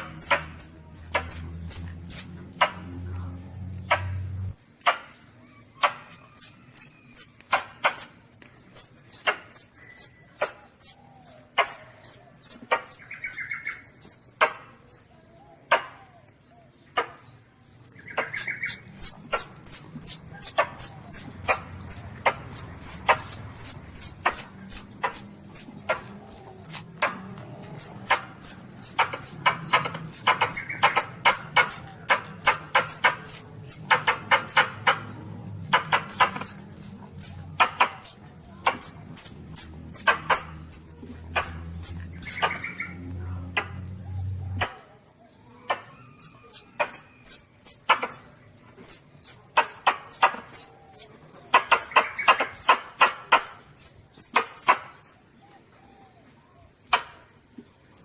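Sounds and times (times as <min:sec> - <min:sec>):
civet distress squeaks: 0:00.0 - 0:02.4, 0:05.8 - 0:15.0, 0:18.2 - 0:35.1, 0:35.7 - 0:42.9, 0:46.0 - 0:55.2.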